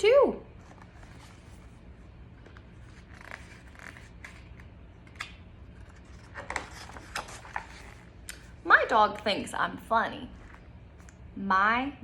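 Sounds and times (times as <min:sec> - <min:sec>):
book page turning: 0:00.5 - 0:08.5.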